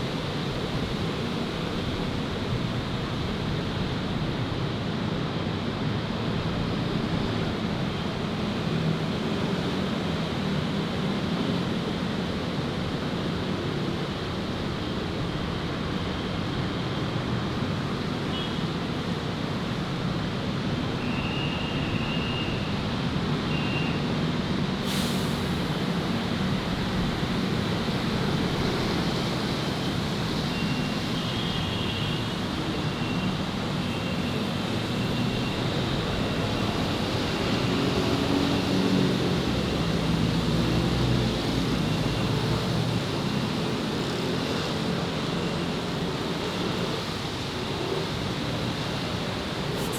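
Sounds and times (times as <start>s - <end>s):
heavy vehicle low engine: 0.0s - 49.9s
vehicle engines passing: 25.3s - 49.9s.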